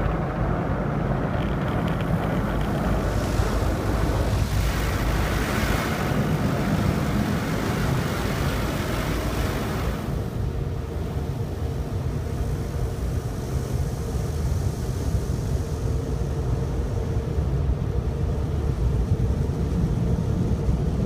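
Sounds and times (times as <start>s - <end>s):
car wash low rumble: 0.0s - 21.0s
rushing hiss of water: 2.7s - 10.3s.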